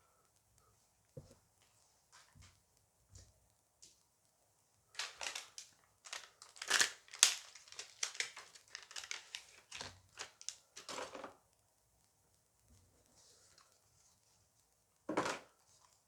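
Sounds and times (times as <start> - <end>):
wrapper crinkling and tearing: 5.0 - 11.2.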